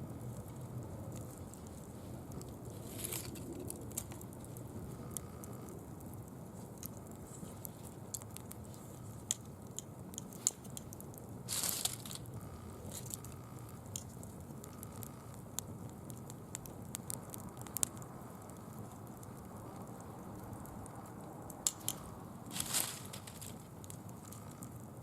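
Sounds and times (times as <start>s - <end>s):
campfire crackling and popping: 0.0s - 25.0s
hissing rustle: 1.1s - 4.7s, 11.5s - 13.2s, 21.7s - 23.8s.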